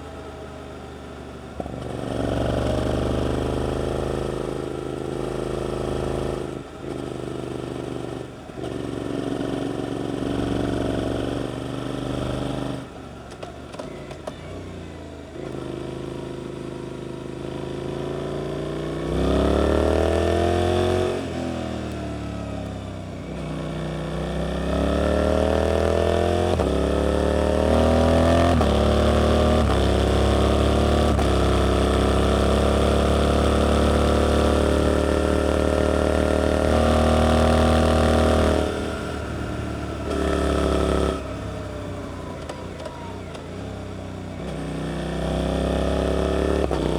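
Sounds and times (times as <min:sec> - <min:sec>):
motorcycle engine revving: 0:01.4 - 0:46.9.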